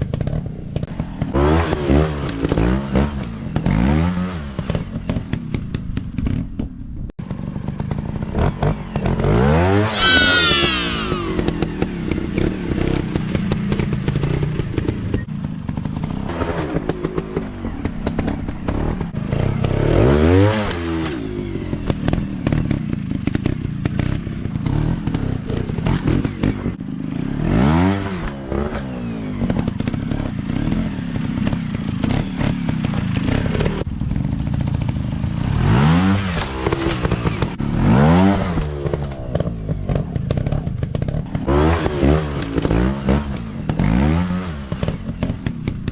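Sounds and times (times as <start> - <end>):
engine clatter and knocking: 0.0 - 1.4, 4.5 - 9.4, 11.6 - 19.8, 21.3 - 27.2, 29.3 - 35.5, 38.6 - 41.5, 44.6 - 45.9
dirt bike engines revving: 7.8 - 14.8.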